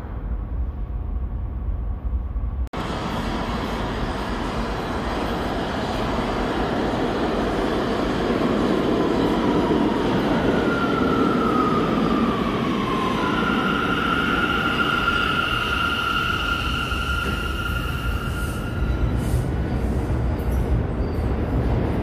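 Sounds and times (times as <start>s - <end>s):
train wheels rumbling on rails: 0.0s - 22.0s
high squeal: 10.6s - 19.8s.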